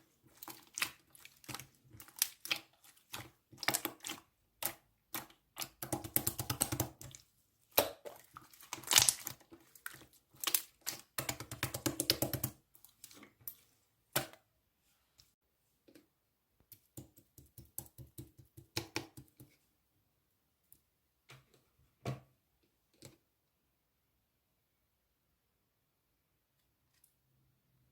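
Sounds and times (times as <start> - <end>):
slime crackling and popping: 7.8 - 9.4.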